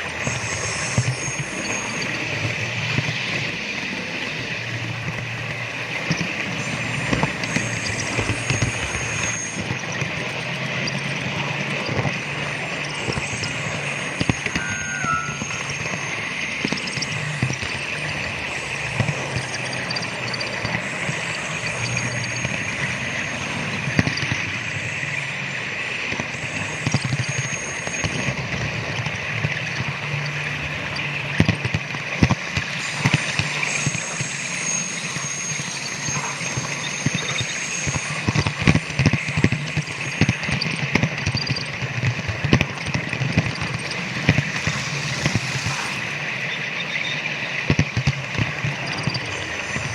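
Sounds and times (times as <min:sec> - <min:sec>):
wheels clicking over rail joints: 0:00.0 - 0:14.6
model train whirring: 0:00.0 - 0:28.1, 0:32.2 - 0:49.9.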